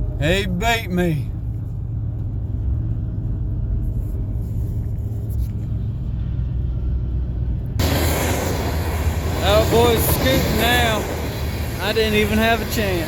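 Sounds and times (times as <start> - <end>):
truck engine and road noise: 0.0 - 13.0
loud rush of noise: 7.8 - 13.0.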